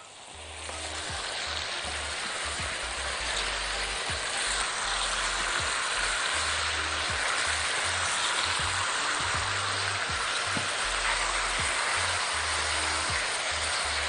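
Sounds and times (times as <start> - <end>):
chicken sizzling in a frying pan: 0.0 - 14.0.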